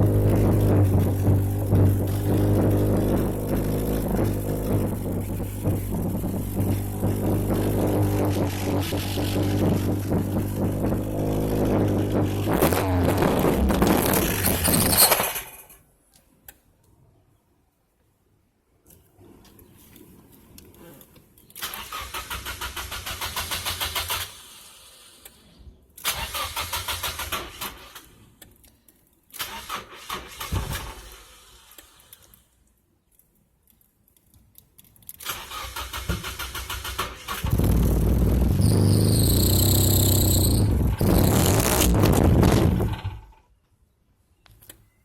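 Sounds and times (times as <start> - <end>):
engine running loudly: 0.0 - 14.4, 37.5 - 43.1
high whine: 0.0 - 14.9
car starter cranking: 0.0 - 15.7, 21.6 - 25.4, 26.0 - 28.2, 29.3 - 32.3, 35.2 - 43.4.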